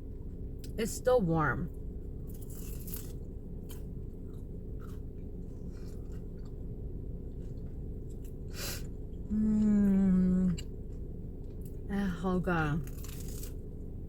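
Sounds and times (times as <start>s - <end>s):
steady low hum: 0.0s - 14.0s
chewing crunchy crust: 2.1s - 11.9s, 12.8s - 14.0s
person humming: 9.3s - 10.6s.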